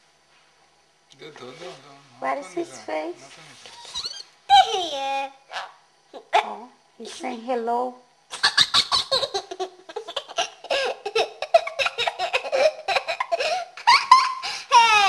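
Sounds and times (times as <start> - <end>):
child squealing laugh: 3.8 - 5.1, 8.3 - 15.0
child giggling and laughing: 3.9 - 5.3, 8.3 - 15.0.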